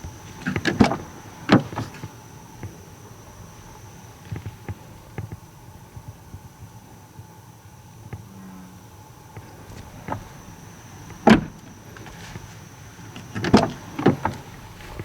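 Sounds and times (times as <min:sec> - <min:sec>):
bullfrog croaking: 0:08.0 - 0:12.1.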